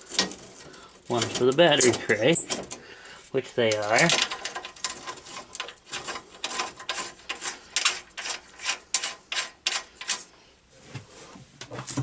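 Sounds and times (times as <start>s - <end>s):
hand tool rasping strokes: 3.7s - 10.4s.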